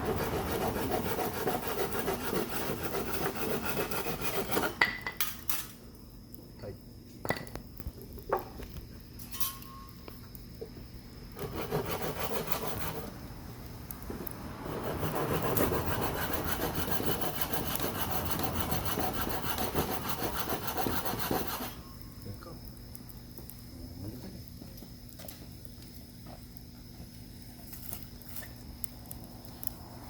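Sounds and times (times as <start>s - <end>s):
rasping scrape on wood: 0.0s - 4.8s, 11.4s - 13.1s, 14.6s - 21.8s.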